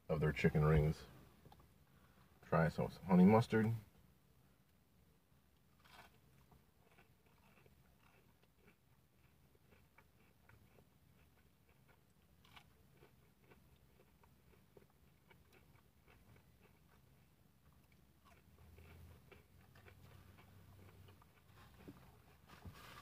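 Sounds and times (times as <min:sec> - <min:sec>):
faint low hum: 0:00.0 - 0:23.0
crunching and chewing: 0:01.4 - 0:01.7, 0:05.5 - 0:23.0.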